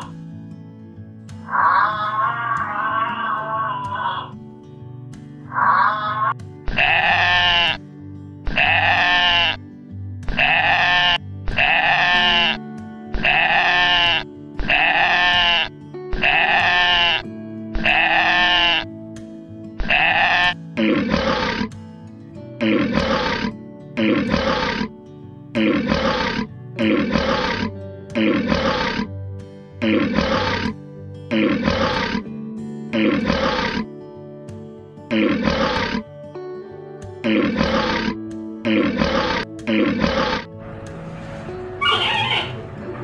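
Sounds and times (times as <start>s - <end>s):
background music with held chords: 0.0s - 1.5s, 4.0s - 5.5s, 6.1s - 43.0s
deep animal roar: 1.5s - 4.4s, 5.5s - 7.8s, 10.3s - 12.6s, 13.2s - 17.2s, 19.8s - 21.7s, 22.6s - 24.9s, 25.6s - 29.1s, 29.8s - 32.3s, 32.9s - 33.8s, 35.1s - 36.1s, 37.2s - 42.9s.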